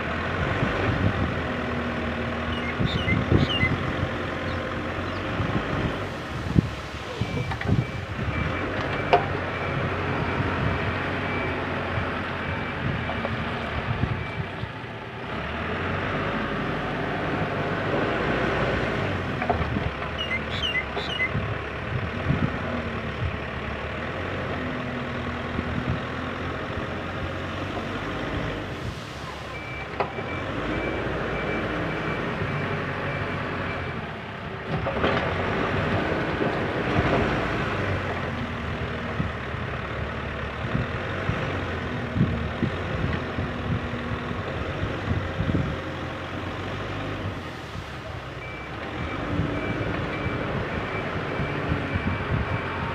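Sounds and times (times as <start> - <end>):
diesel engine under load: 0.0 - 52.9
reversing alarm beeping: 7.1 - 13.4, 48.4 - 52.9.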